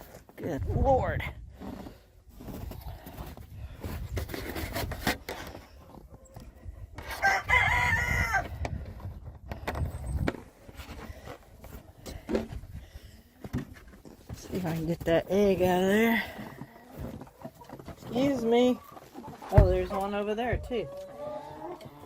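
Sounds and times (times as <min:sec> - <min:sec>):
rooster crowing: 0:07.2 - 0:08.4.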